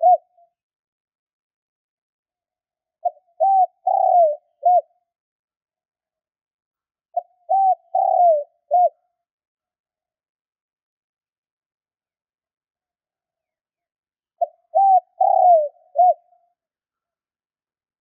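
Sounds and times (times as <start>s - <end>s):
dove cooing: 0.0s - 0.4s, 3.0s - 5.0s, 7.2s - 9.0s, 14.4s - 16.4s.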